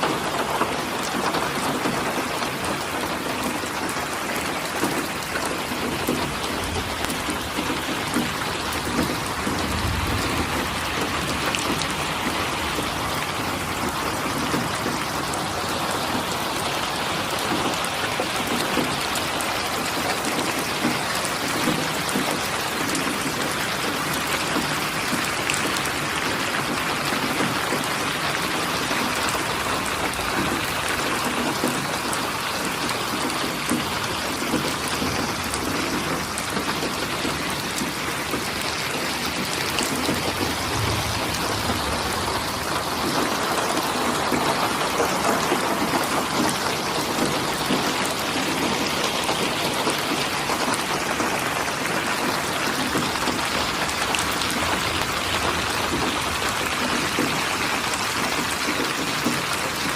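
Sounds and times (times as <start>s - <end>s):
rain drops pattering: 0.0s - 59.9s
low rumble: 40.2s - 43.5s.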